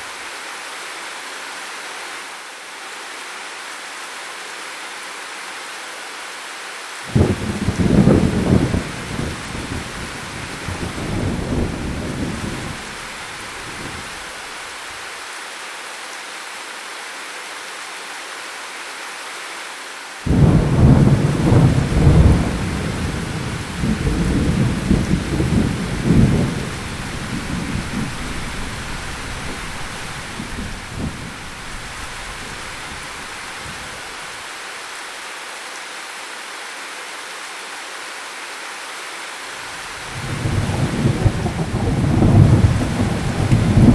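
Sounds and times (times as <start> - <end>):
steady rain: 0.0 - 43.9
loud thunderclap: 7.1 - 14.2, 20.3 - 34.0, 40.0 - 43.9
thunder rumbling: 7.1 - 14.2, 20.3 - 34.2, 40.0 - 43.9.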